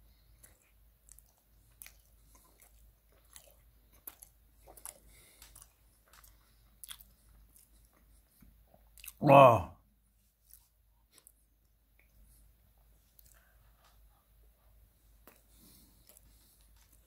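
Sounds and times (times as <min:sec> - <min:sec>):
wet chewing mouth clicks: 0:00.4 - 0:09.2, 0:13.1 - 0:13.5.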